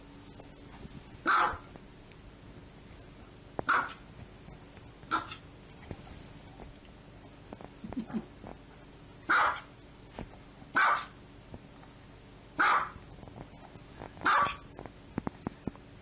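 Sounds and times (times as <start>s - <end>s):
small dog barking: 1.2s - 1.7s, 3.6s - 4.1s, 5.1s - 5.4s, 9.3s - 9.7s, 10.7s - 11.2s, 12.6s - 13.0s, 14.2s - 14.7s.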